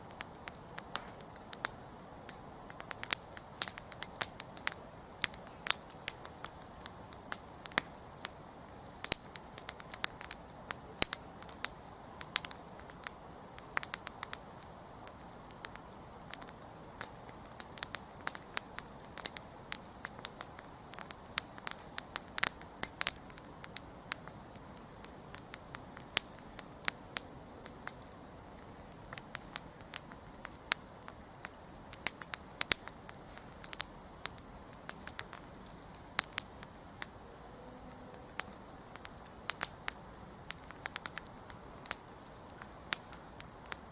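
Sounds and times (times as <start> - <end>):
campfire crackling and popping: 0.0 - 43.9
low hiss of flames: 0.0 - 43.9.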